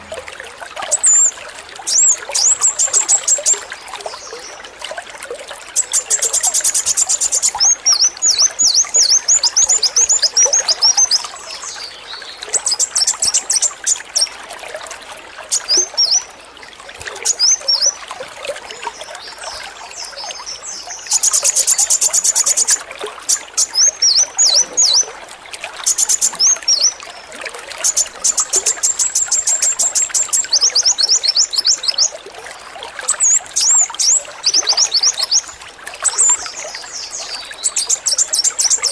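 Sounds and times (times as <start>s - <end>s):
running water trickling: 0.0s - 38.9s
bird singing trills: 5.8s - 14.3s, 15.5s - 16.3s, 19.9s - 25.1s, 25.8s - 27.0s, 27.8s - 32.2s, 33.1s - 38.9s.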